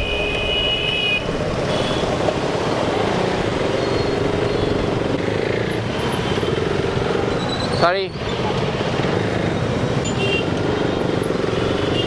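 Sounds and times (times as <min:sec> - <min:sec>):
high steady horn tones: 0:00.0 - 0:02.4
road and traffic noise: 0:00.0 - 0:12.0.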